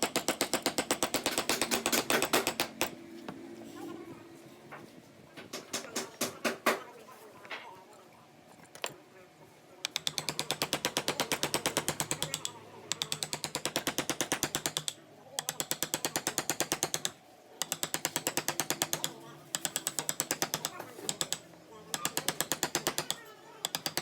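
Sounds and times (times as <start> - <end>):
rapid ratchet-like clicking: 0.0 - 2.9, 9.9 - 24.0.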